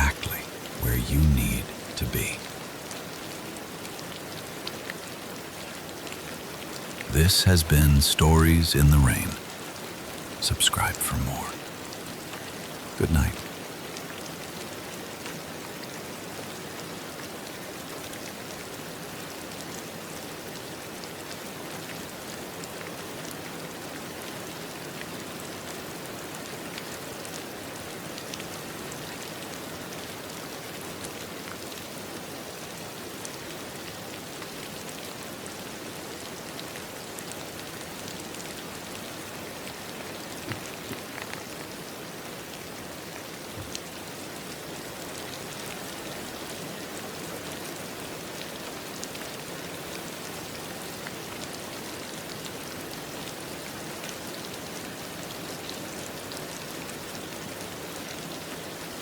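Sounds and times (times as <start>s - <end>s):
steady rain: 12.4s - 59.0s.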